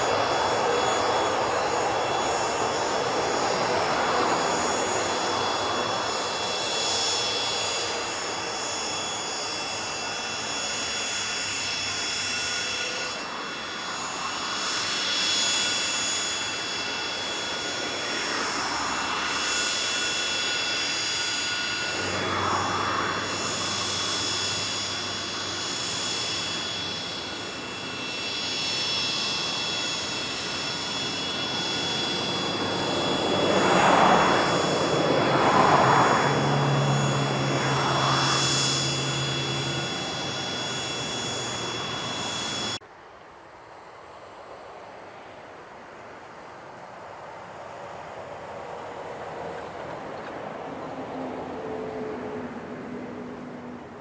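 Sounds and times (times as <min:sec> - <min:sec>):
jet engines whining: 0:00.0 - 0:42.8, 0:43.7 - 0:54.0
rushing noise: 0:15.7 - 0:42.8.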